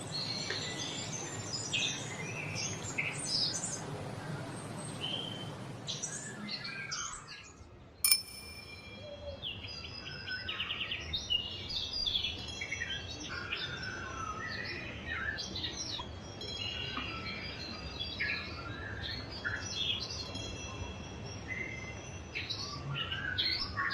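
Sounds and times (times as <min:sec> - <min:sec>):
songbirds chirping and trilling: 0:00.0 - 0:08.0, 0:09.0 - 0:23.9
bell ringing: 0:08.1 - 0:09.2.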